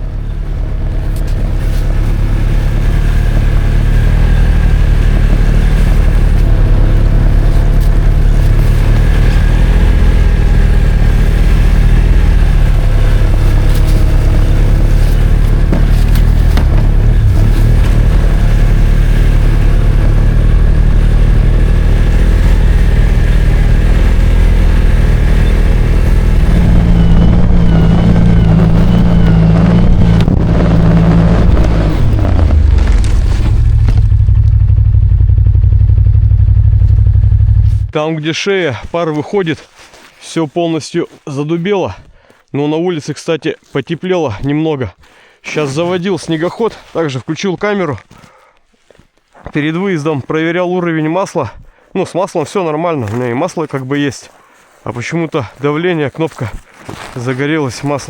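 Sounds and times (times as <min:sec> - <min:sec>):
snowmobile engine running: 0:00.0 - 0:37.9.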